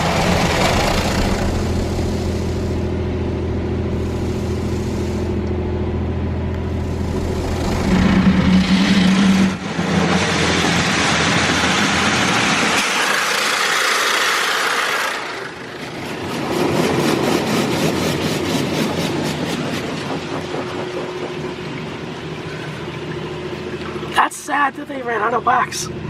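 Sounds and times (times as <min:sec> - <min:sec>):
low machine hum: 0:00.0 - 0:12.8, 0:15.0 - 0:26.0
car wash spray hiss: 0:01.1 - 0:02.9, 0:03.9 - 0:05.4.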